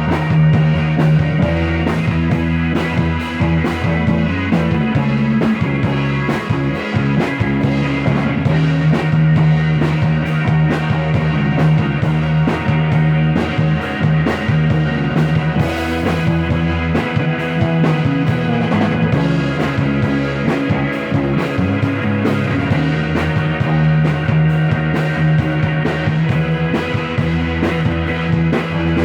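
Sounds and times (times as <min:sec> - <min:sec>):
psychedelic rock music: 0:00.0 - 0:29.0
steady drum beat: 0:00.0 - 0:29.0
sustained guitar or organ chords: 0:00.0 - 0:29.0.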